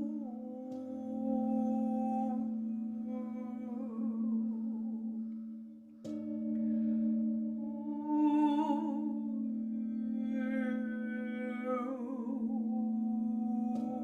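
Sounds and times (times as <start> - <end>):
woman humming: 0.0 - 5.2, 7.6 - 14.0
singing bowls ringing: 0.0 - 14.0.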